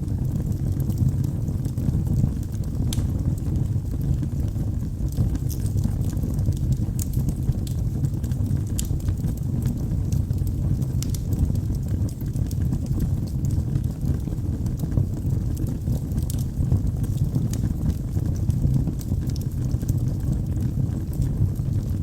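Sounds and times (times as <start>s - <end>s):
fire crackling and popping: 0.0s - 22.0s
fire rumbling: 0.0s - 22.0s.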